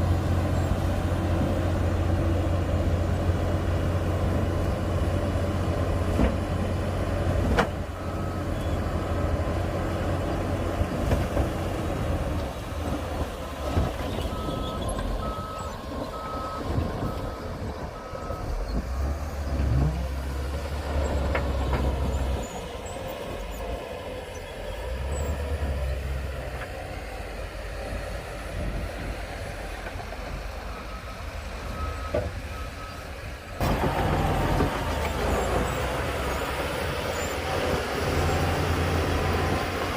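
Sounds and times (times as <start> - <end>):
heavy machinery diesel engines: 0.0 - 39.9
reversing alarm beeping: 14.3 - 18.8.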